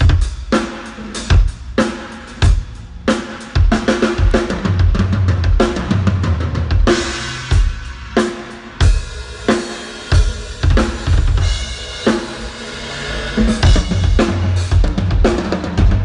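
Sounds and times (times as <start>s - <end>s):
drum strikes: 0.0s - 16.0s
cymbal crash: 11.4s - 14.8s.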